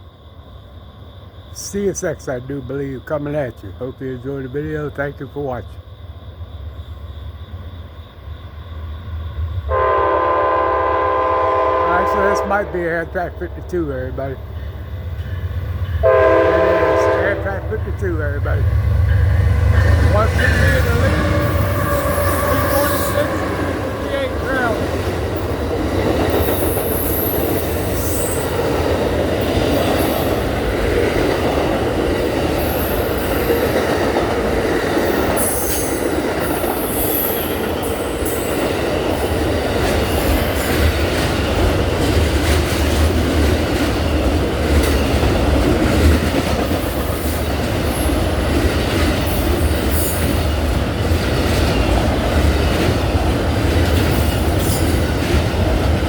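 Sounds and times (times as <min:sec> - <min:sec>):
train wheels rumbling on rail: 0:00.0 - 0:56.0
high wheel squeals: 0:19.1 - 0:24.8, 0:26.3 - 0:28.7, 0:35.0 - 0:41.1.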